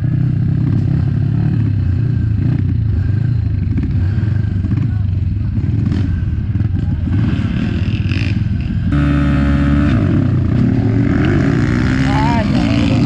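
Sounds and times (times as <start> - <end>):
loud motorbike engine: 0.0 - 13.0
motocross bikes running: 0.0 - 13.0.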